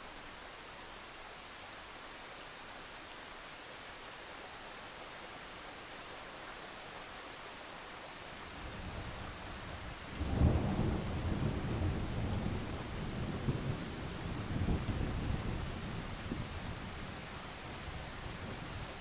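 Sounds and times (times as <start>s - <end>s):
steady rain hissing: 0.0s - 19.0s
deep thunder rumbling: 10.2s - 16.4s.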